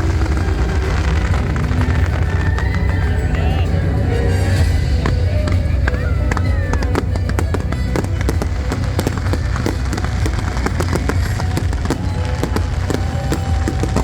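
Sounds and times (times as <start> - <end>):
firework pops and cracks: 6.8 - 14.0.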